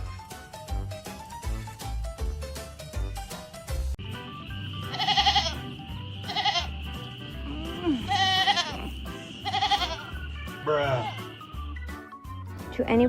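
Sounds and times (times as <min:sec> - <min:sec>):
background music with steady beat: 0:00.0 - 0:13.0
animal wavering cries: 0:04.8 - 0:06.8, 0:07.4 - 0:11.5.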